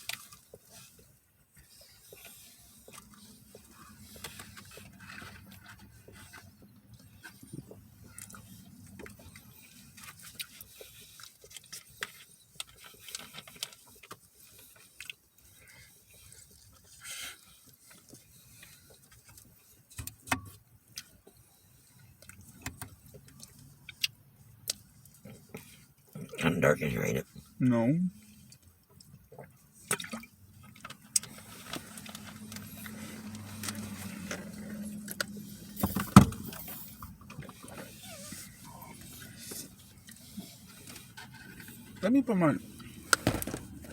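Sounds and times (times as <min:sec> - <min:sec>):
packaging clicks and rustles: 0:42.7 - 0:43.9.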